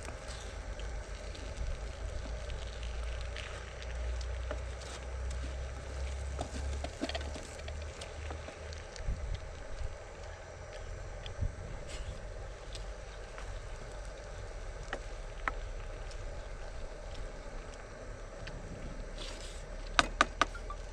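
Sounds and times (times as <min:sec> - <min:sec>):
wind buffeting microphone: 0:09.0 - 0:10.0, 0:10.6 - 0:12.6, 0:16.5 - 0:19.2.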